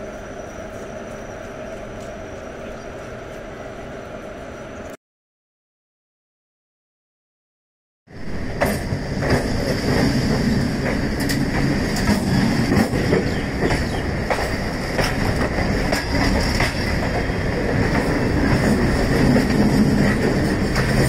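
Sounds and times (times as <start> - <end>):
train rumble: 0.0 - 5.0, 8.1 - 21.0
train wheels clattering over rail joints: 8.5 - 21.0.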